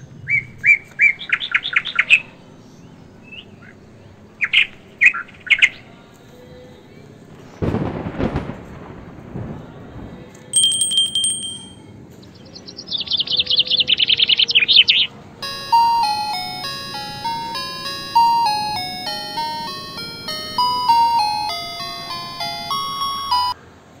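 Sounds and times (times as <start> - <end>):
melody of ringing notes: 10.6 - 11.8, 15.4 - 23.6.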